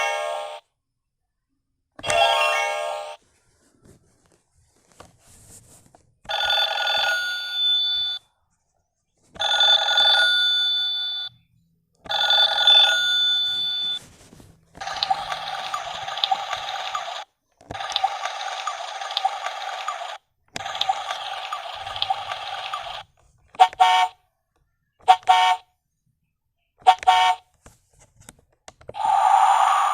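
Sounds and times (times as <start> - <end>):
telephone ringing: 2.0 - 3.2, 6.3 - 8.2, 9.4 - 11.4, 12.0 - 14.0, 14.8 - 23.1.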